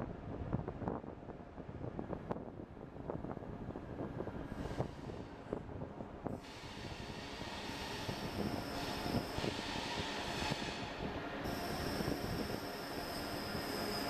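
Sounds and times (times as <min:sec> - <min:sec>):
train braking into station: 0:06.3 - 0:14.0.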